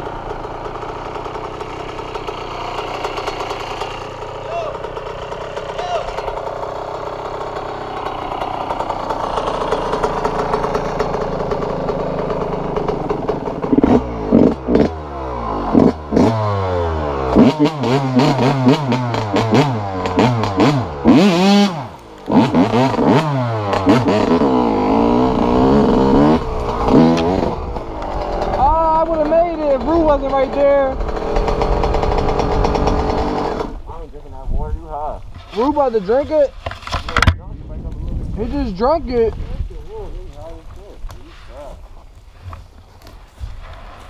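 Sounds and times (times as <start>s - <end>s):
dirt bike engine revving: 0.0s - 34.4s.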